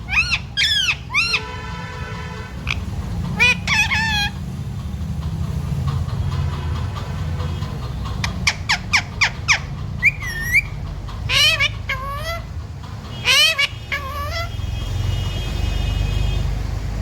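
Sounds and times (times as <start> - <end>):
parrot whistling and squawking: 0.0 - 1.6, 2.6 - 4.4, 8.2 - 12.5, 13.2 - 14.6.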